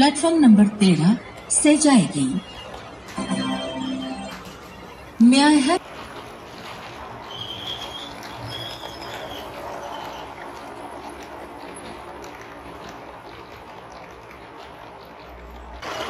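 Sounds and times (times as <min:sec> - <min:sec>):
rain patter: 0:03.1 - 0:16.0.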